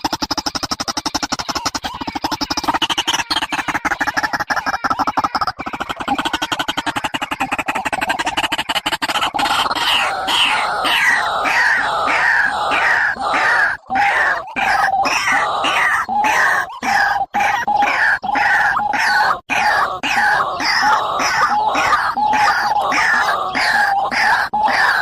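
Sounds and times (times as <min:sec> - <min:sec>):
harsh repeated bird calls: 0:00.0 - 0:25.0.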